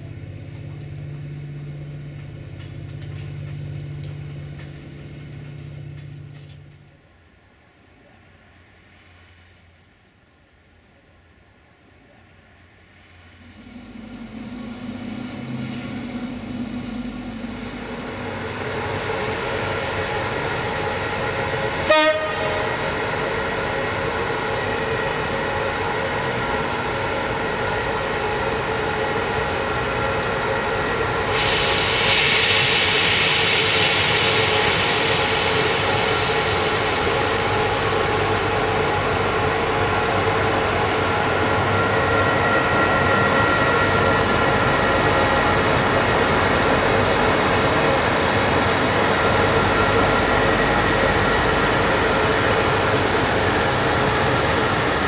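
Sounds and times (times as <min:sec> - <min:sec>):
train rolling rumble: 0:00.0 - 0:55.0
locomotive whining tones: 0:13.3 - 0:32.0
high hiss: 0:31.3 - 0:39.2.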